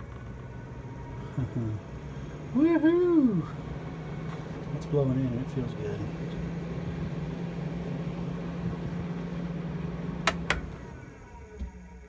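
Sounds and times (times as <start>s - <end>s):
roof vent fan humming: 0.0s - 12.0s
sharp clicks: 10.3s - 10.9s.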